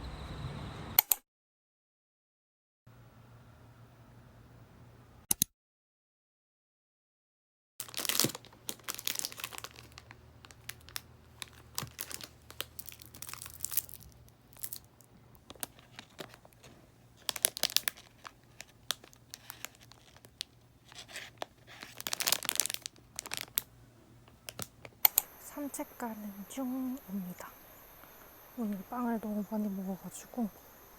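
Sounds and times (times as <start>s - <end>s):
crinkling and rustling: 7.8s - 30.9s.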